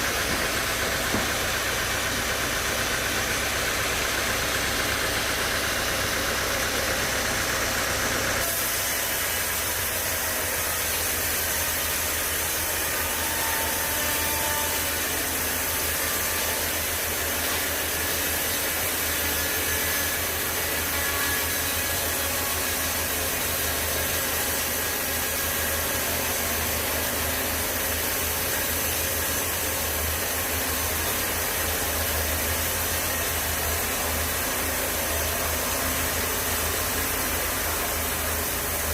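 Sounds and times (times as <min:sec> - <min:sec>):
sawmill machinery drone: 0:00.0 - 0:38.9.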